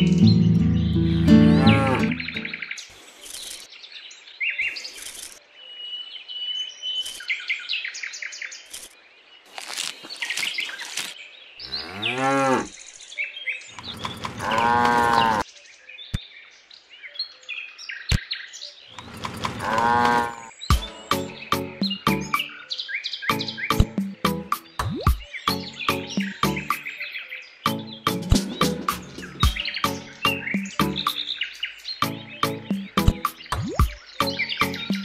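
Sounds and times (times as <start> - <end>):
small birds chirping: 0.0 - 35.0
cows mooing: 1.4 - 2.3, 11.6 - 12.7, 13.8 - 15.4, 19.0 - 20.5.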